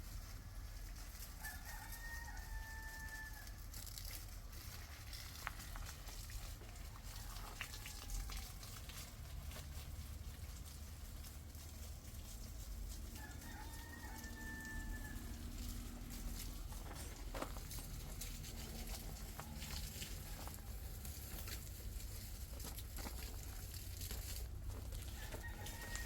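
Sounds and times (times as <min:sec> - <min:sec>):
rooster crowing: 0:01.3 - 0:03.7, 0:07.0 - 0:08.7, 0:13.0 - 0:17.6, 0:18.8 - 0:21.0, 0:25.0 - 0:26.0.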